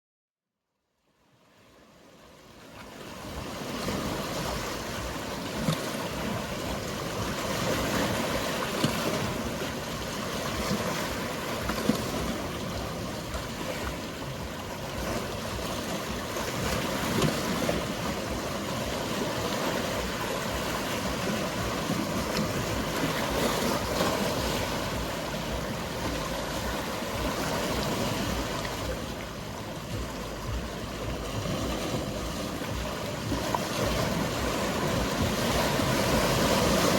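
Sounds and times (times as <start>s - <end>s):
sea waves lapping on shore: 1.2s - 36.9s.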